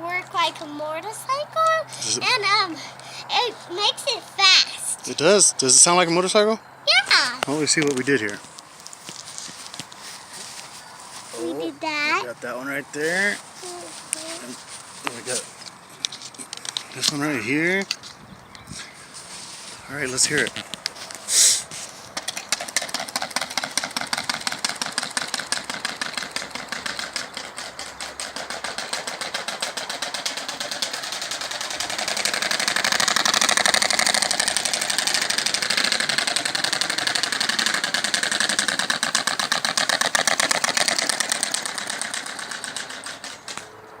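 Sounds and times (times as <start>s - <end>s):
noisemakers rattling on bike spokes: 12.9s - 43.8s.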